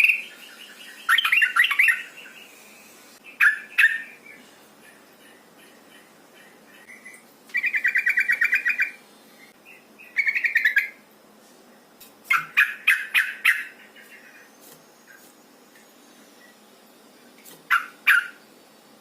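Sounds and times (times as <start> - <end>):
bird chattering trills: 0.0 - 9.0, 12.3 - 14.5.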